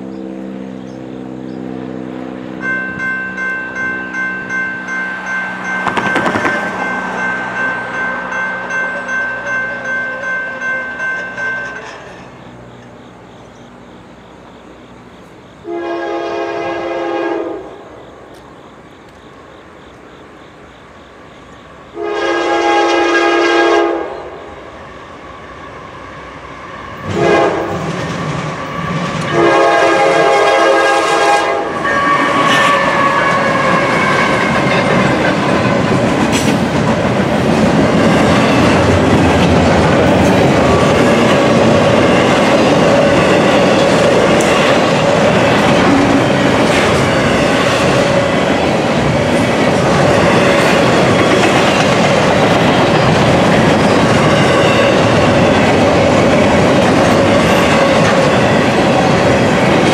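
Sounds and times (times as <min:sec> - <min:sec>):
freight train rumbling past: 0:00.0 - 0:59.9
wheels clattering on rails: 0:02.3 - 0:15.4, 0:27.0 - 0:30.5, 0:31.6 - 0:59.9
locomotive air horn blasts: 0:15.6 - 0:17.8, 0:22.0 - 0:24.4, 0:27.0 - 0:27.9, 0:28.8 - 0:34.5.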